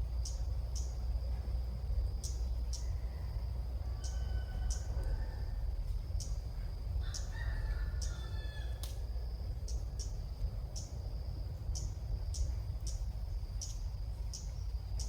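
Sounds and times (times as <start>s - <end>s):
steady high buzz with clicks: 0.0s - 3.0s, 8.0s - 15.0s
rooster crowing: 2.8s - 5.9s, 7.0s - 9.0s.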